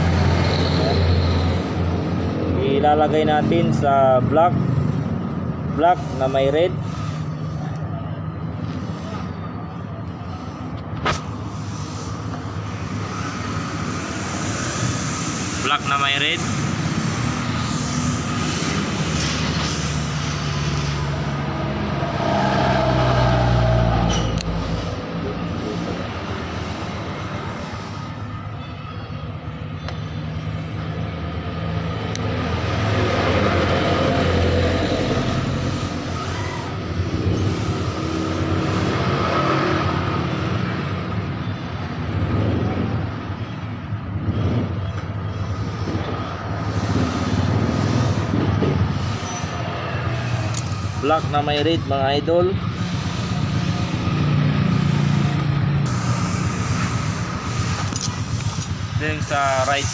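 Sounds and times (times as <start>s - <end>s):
vehicle engine passing by: 16.4s - 28.0s, 30.9s - 41.2s.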